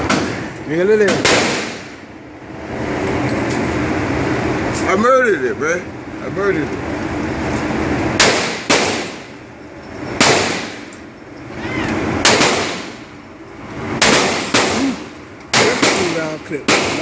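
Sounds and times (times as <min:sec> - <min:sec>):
gunshots ringing out: 0:01.1 - 0:01.9, 0:08.2 - 0:09.3, 0:10.2 - 0:10.8, 0:12.2 - 0:13.0, 0:14.0 - 0:17.0.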